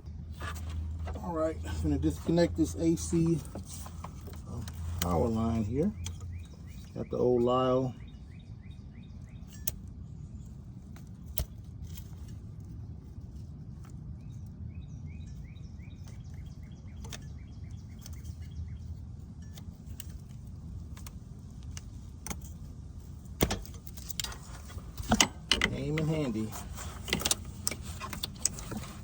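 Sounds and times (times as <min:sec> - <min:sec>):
low background rumble: 0:00.0 - 0:29.0
faint bird chirps: 0:14.2 - 0:19.6
hand tools clicking and tapping: 0:23.4 - 0:29.0.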